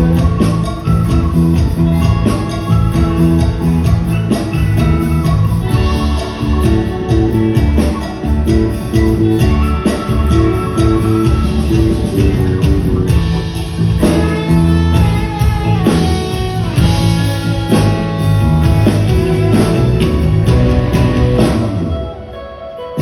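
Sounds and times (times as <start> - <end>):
live band playing upbeat song: 0.0 - 23.0.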